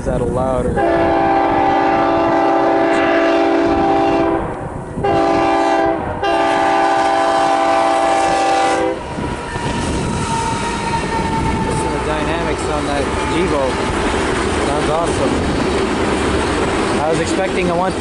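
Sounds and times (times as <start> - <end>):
passing train rumble: 0.0 - 18.0
loud locomotive horn blasts: 0.8 - 14.0.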